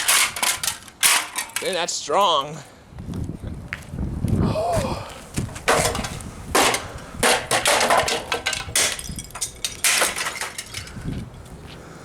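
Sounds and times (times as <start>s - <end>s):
cracking and clattering: 5.5s - 11.2s
hammer smashing speaker: 5.6s - 9.2s.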